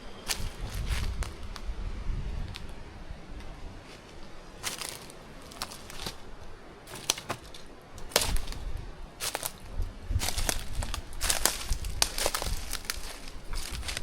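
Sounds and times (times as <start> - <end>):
footsteps on rough ground: 0.0 - 1.7, 3.8 - 14.0
crackles and snaps: 6.9 - 8.6, 9.2 - 14.0.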